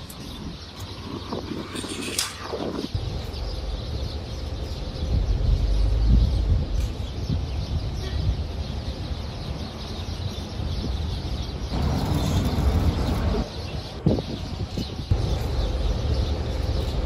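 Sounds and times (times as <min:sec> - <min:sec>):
birds chirping: 0:00.0 - 0:17.0
steady low rumble: 0:02.6 - 0:08.0, 0:11.7 - 0:17.0.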